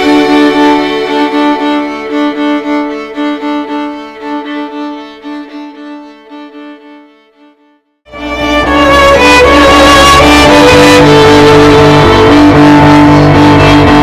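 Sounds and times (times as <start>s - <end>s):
violin playing short repeated notes: 0.0s - 14.0s.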